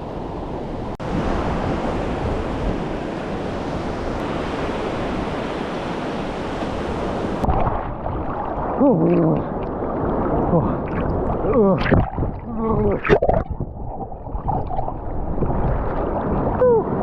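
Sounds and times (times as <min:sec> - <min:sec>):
ocean surf breaking: 0:00.0 - 0:13.1.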